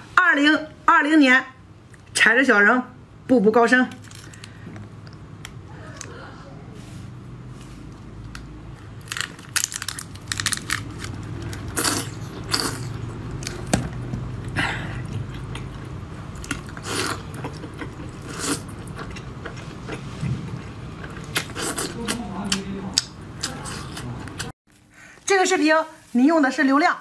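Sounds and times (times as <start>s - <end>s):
crunching bites: 9.0s - 14.0s
wet chewing mouth sounds: 11.5s - 24.5s.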